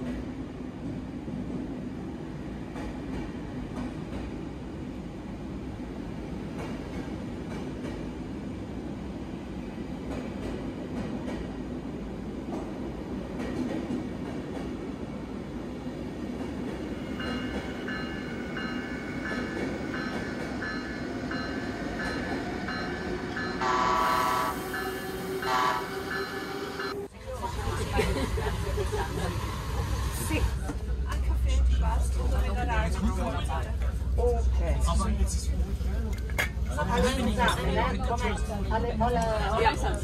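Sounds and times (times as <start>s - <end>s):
train rumble and rail noise: 0.0s - 40.0s
train horn blast: 23.6s - 27.1s.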